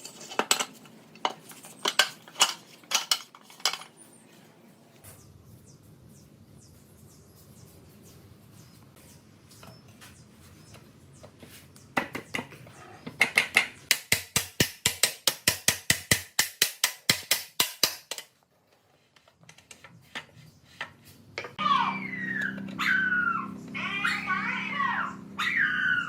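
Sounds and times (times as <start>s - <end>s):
dog whining: 21.6s - 26.0s.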